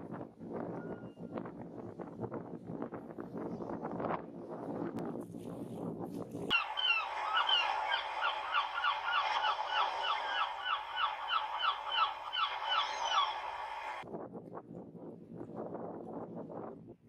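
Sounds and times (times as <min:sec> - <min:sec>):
bird calling rapidly: 0:06.5 - 0:14.0.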